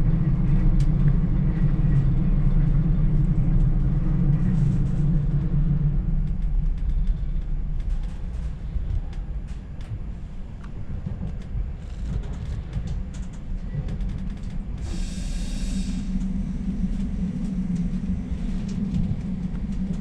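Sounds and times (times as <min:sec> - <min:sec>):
train rumbling inside carriage: 0:00.0 - 0:20.0.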